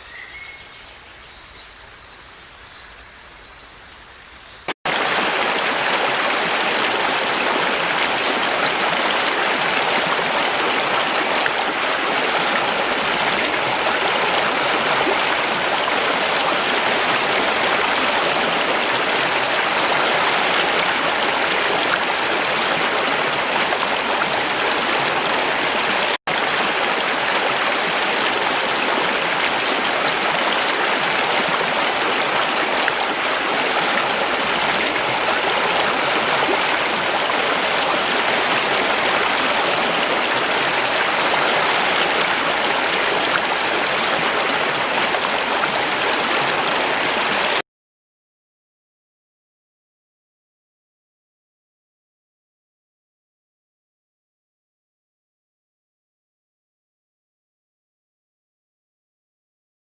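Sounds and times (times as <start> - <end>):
stream water rushing: 0.0 - 47.6.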